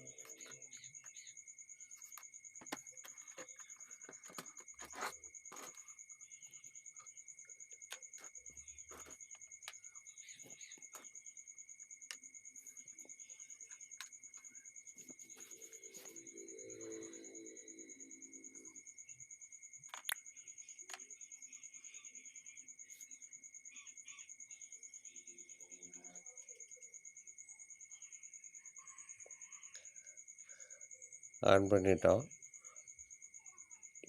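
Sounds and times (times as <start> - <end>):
clicks and knocks of plastic parts: 19.9 - 20.2.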